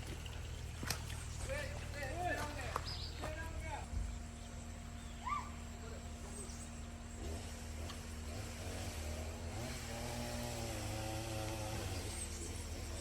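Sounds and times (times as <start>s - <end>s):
motor engine droning: 3.0s - 13.0s.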